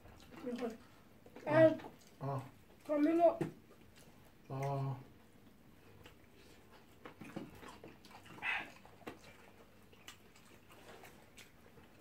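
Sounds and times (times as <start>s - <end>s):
people chewing: 0.0s - 12.0s
lip smacks and mouth clicks: 6.0s - 12.0s.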